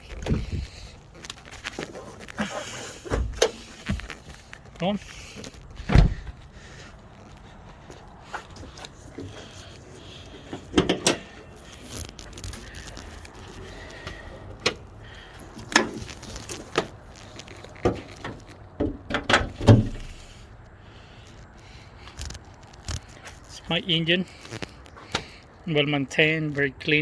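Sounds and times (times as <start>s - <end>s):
car hood clunks and clicks: 0.2s - 0.6s, 3.0s - 4.1s, 5.8s - 6.4s, 10.6s - 11.3s, 17.8s - 20.2s.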